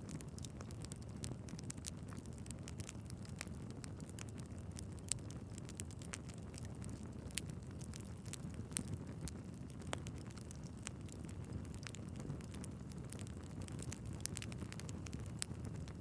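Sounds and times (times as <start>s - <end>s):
fire crackling and popping: 0.0s - 16.0s
low rush of flames: 0.0s - 16.0s.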